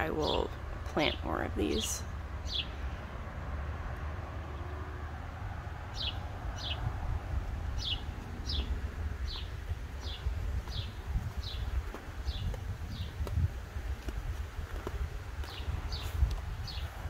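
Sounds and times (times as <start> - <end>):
bird chirping: 0.2 - 2.8, 5.9 - 6.9, 7.8 - 13.2.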